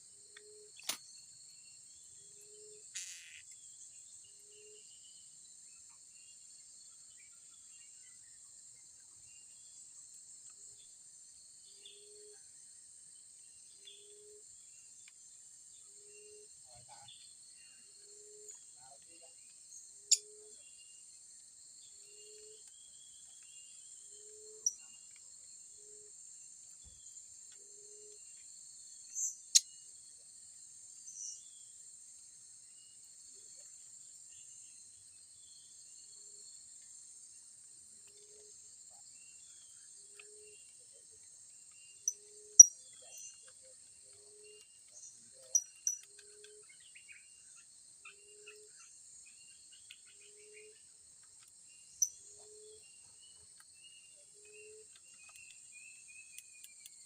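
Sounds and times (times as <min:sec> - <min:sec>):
crickets droning: 0:00.0 - 0:57.0
high-pitched bird chirps: 0:03.0 - 0:03.4.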